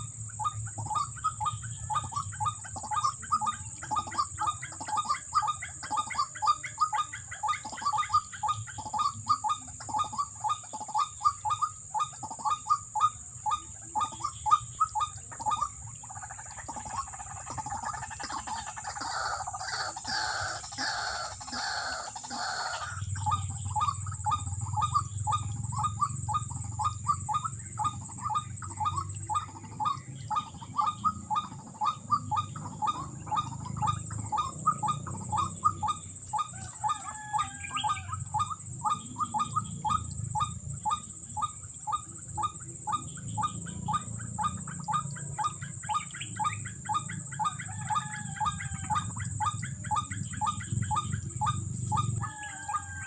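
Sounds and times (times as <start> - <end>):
waterhen calling rapid notes: 0.0 - 53.0.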